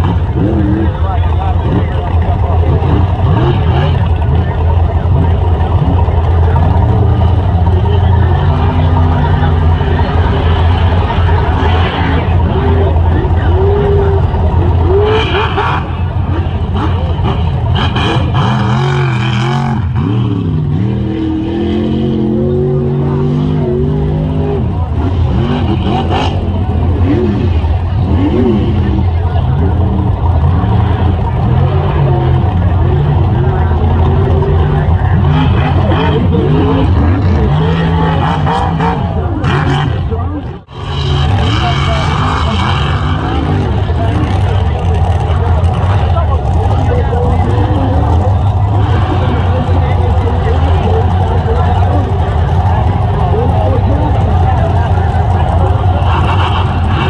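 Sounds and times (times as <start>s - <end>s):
truck engines revving: 0.0s - 57.0s.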